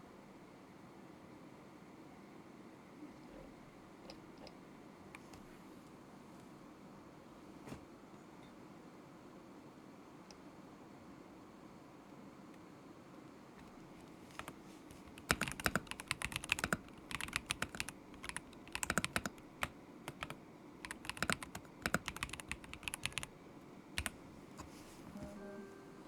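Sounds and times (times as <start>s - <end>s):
mechanical keyboard typing: 14.3s - 23.3s, 24.0s - 24.2s.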